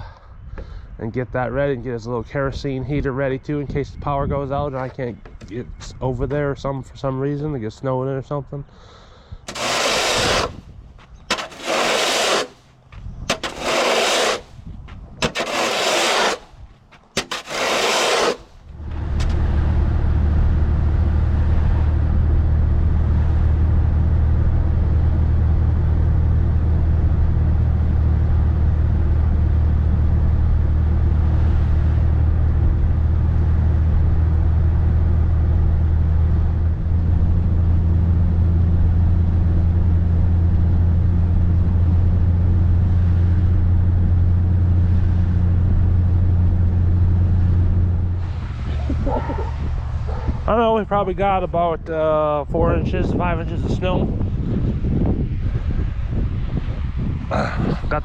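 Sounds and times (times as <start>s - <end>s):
loud scraping strokes: 9.5s - 10.7s, 11.3s - 12.7s, 13.3s - 14.6s, 15.2s - 18.8s
vehicle engine humming: 9.5s - 51.9s.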